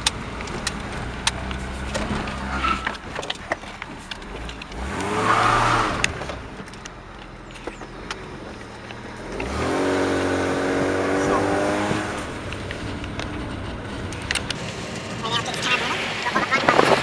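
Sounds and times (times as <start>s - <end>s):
clicks and rattles: 0.0s - 5.1s, 6.0s - 9.6s, 12.1s - 14.8s
car engine revving: 0.0s - 17.0s.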